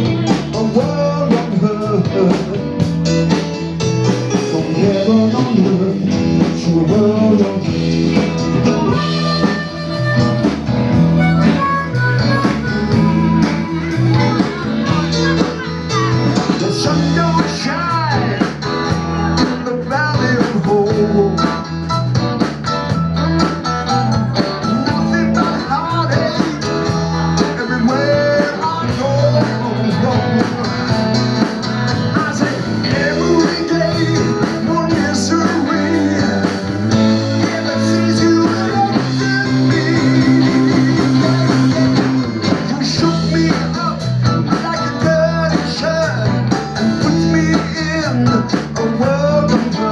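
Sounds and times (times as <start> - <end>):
live blues trio playing: 0.0 - 49.9
steady bass line: 0.0 - 49.9
electric guitar lines: 4.8 - 19.8, 21.1 - 45.4.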